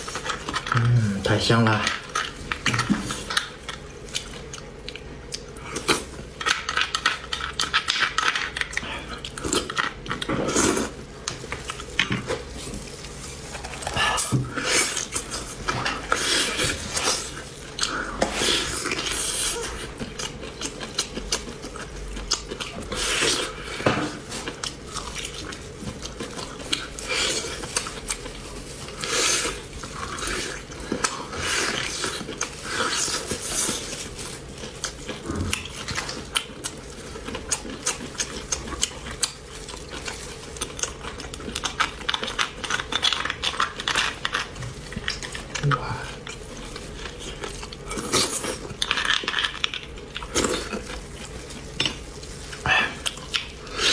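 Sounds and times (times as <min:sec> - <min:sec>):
chewing and biting: 0:01.8 - 0:53.9.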